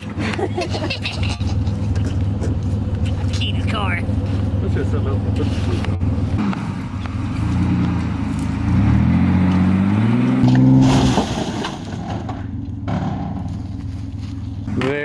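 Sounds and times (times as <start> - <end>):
pickup truck engine revving: 4.0 - 13.6.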